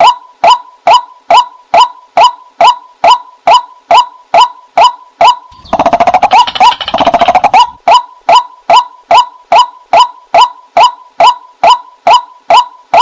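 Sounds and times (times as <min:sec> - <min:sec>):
waterhen calling: 0:05.5 - 0:08.0.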